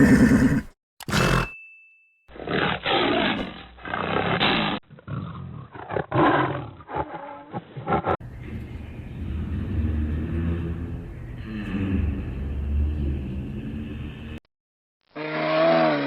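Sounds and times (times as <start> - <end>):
tiger roaring and growling: 0.0 - 1.5, 2.4 - 14.4.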